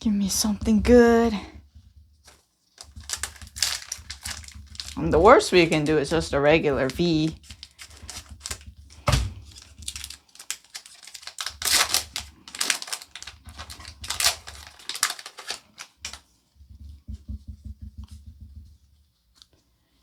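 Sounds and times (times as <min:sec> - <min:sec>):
handling bumps: 0:00.4 - 0:10.2
cards being flipped through: 0:02.8 - 0:05.0, 0:06.8 - 0:16.3.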